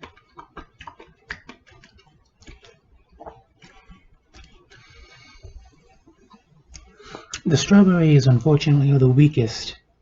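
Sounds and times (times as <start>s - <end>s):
person chewing strawberry: 0.0s - 7.4s.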